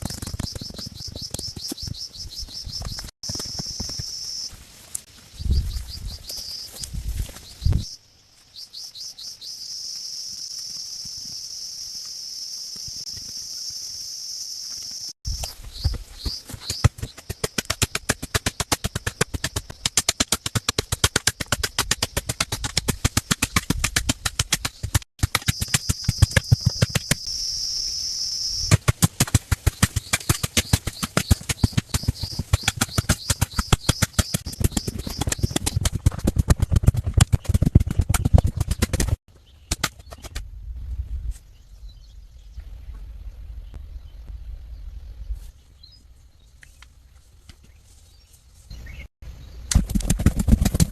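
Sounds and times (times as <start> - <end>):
high insect or bird trill: 0.4 - 4.5, 5.4 - 16.8, 25.4 - 28.8.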